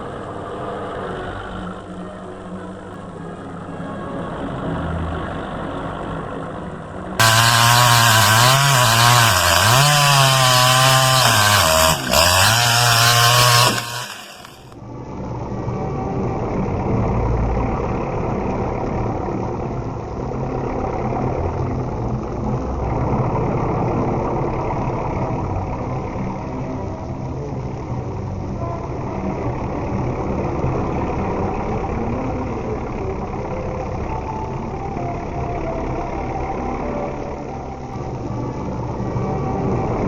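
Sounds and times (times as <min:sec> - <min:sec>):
motor running with low rumble: 0:07.2 - 0:14.6.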